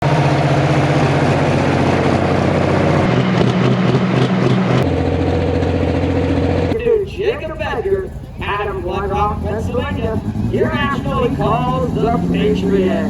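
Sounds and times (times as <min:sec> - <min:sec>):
tractor engine at high revs: 0:00.0 - 0:13.0.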